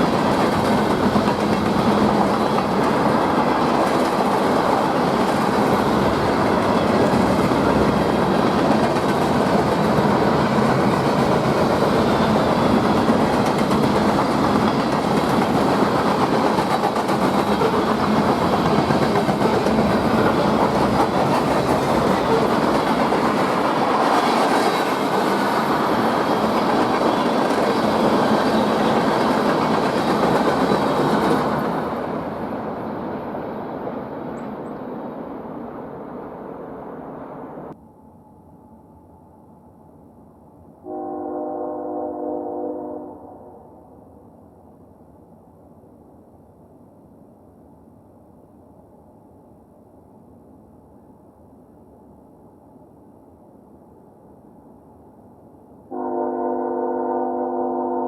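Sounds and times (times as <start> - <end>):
train cars rolling past: 0.0 - 39.1.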